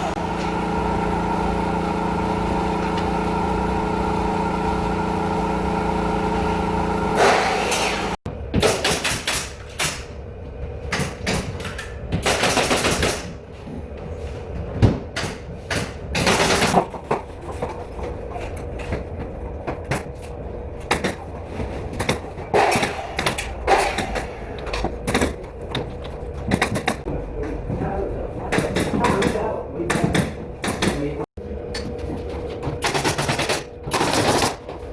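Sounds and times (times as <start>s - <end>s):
carpentry knocks and clacks: 14.8s - 34.9s.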